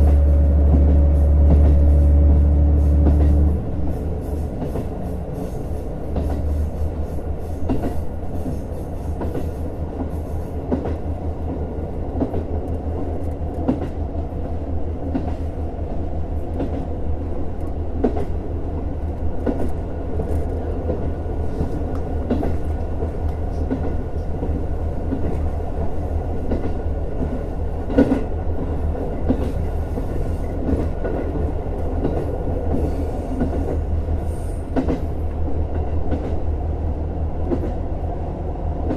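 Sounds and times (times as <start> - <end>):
diesel railcar drone: 0.0 - 38.9
train wheels clicking on track: 0.0 - 38.9.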